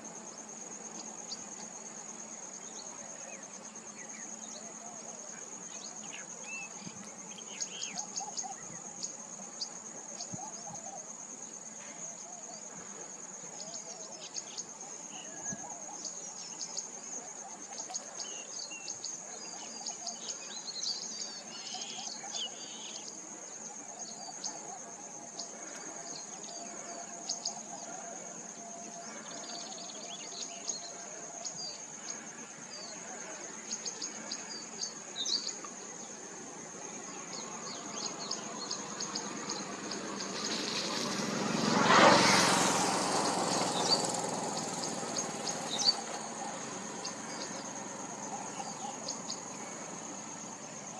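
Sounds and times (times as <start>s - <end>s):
high-pitched insect drone: 18.5s - 50.9s.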